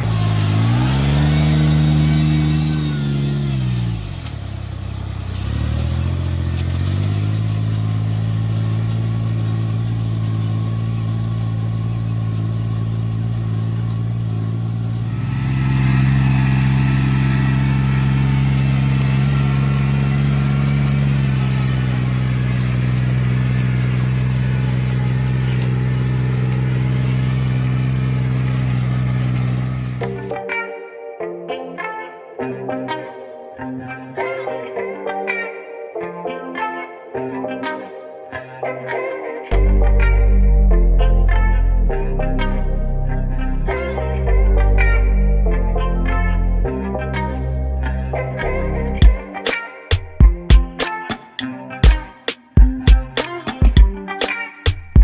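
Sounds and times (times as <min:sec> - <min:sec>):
farm machinery engine running: 0:00.0 - 0:30.4.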